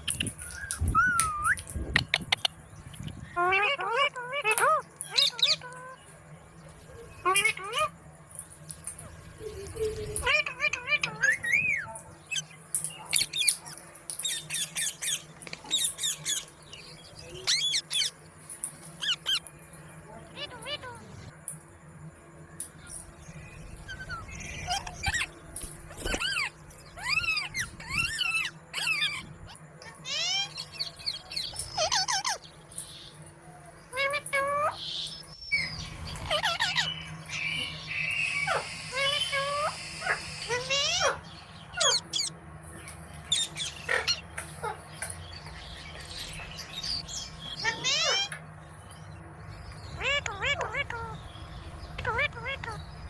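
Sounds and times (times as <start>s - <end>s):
parrot squawking: 3.3s - 6.0s, 7.2s - 8.0s, 10.2s - 12.4s, 17.4s - 18.1s, 19.0s - 19.5s, 23.9s - 25.4s, 26.0s - 32.5s, 33.9s - 42.3s, 43.3s - 44.9s, 46.8s - 48.4s, 49.8s - 51.3s, 51.9s - 53.0s.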